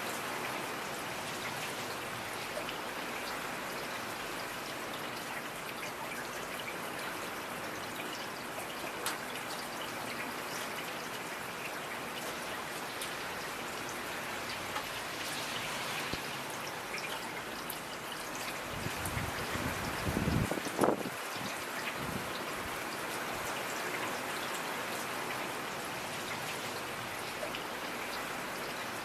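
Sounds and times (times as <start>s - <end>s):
rain falling: 0.0s - 29.0s.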